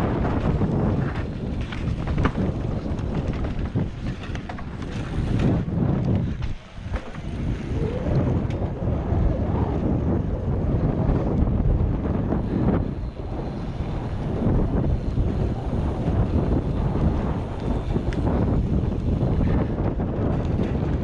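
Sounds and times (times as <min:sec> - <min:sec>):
bike knocks and rattles: 0:00.0 - 0:08.7, 0:13.4 - 0:21.0
wind buffeting microphone: 0:00.0 - 0:21.0.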